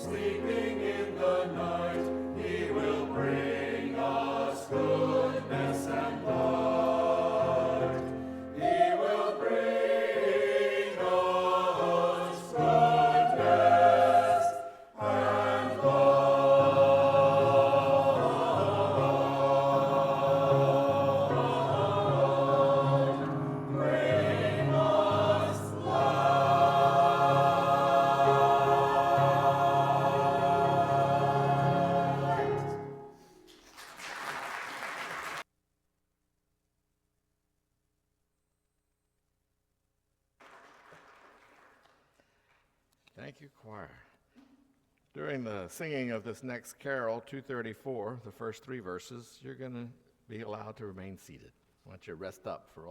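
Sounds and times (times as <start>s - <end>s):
church choir singing: 0.0s - 33.5s.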